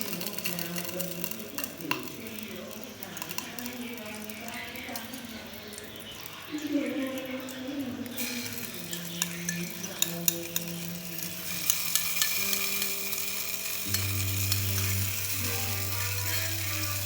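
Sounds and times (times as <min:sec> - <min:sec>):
food sizzling in hot oil: 0:00.0 - 0:17.0
utensil clinking on pan: 0:08.2 - 0:17.0.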